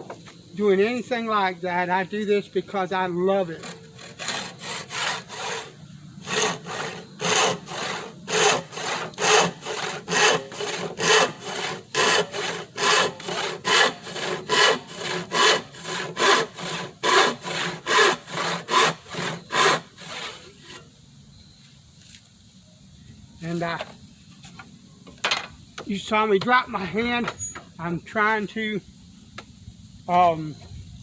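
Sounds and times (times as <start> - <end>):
hand saw cutting wood: 3.4 - 20.8.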